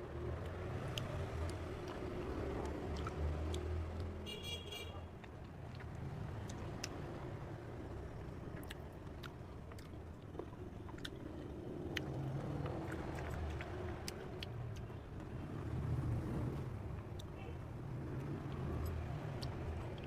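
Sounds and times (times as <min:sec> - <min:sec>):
chewing mouth sounds: 0:00.4 - 0:04.2, 0:05.1 - 0:07.3, 0:08.5 - 0:15.1, 0:18.2 - 0:20.0.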